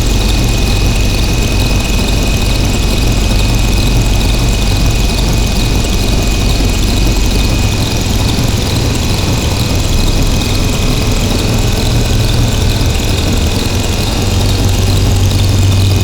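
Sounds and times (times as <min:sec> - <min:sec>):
high whine: 0:00.0 - 0:16.0
low drone: 0:00.0 - 0:16.0.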